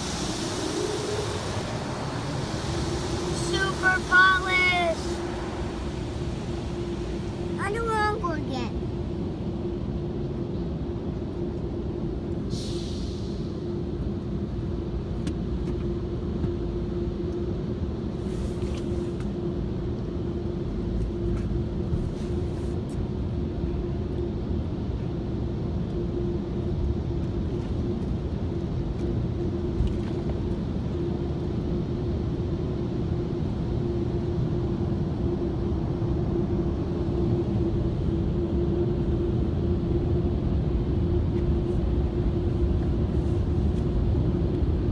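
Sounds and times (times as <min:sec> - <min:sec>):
car wash machinery rumbling: 0:00.0 - 0:09.2.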